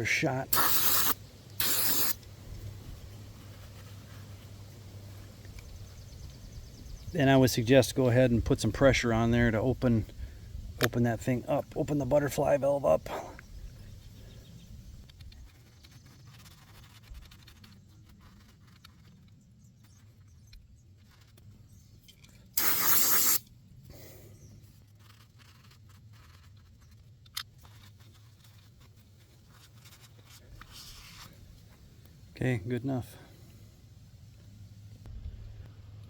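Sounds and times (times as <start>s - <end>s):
aerosol spray hiss: 0.5s - 2.2s, 22.6s - 23.4s.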